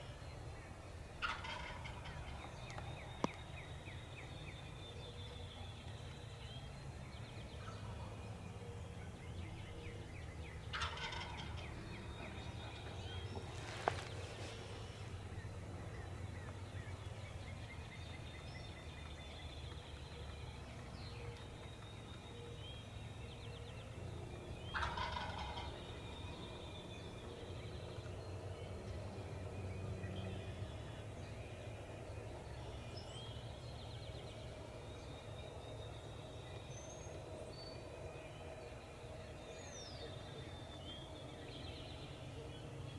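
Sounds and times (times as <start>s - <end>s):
low background noise: 0.0s - 42.9s
turkey gobbling: 1.2s - 2.6s, 10.7s - 11.7s, 24.7s - 25.8s.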